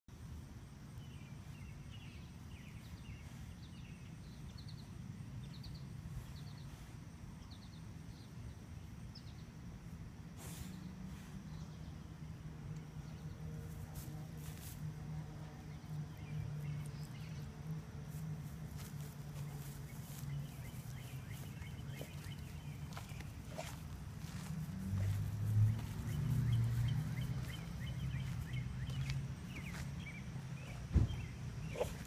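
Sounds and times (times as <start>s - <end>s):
small birds chirping: 0.9s - 32.0s
rustle: 9.2s - 32.0s.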